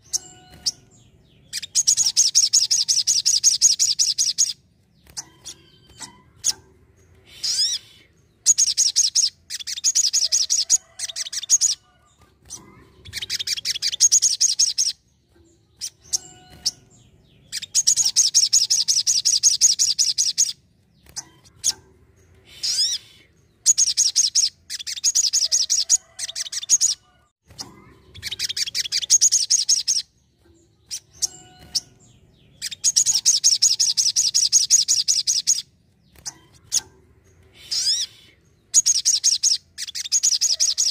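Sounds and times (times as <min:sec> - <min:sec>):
bird trilling chatter: 0:00.0 - 0:15.0, 0:27.6 - 0:35.6, 0:36.2 - 0:40.9.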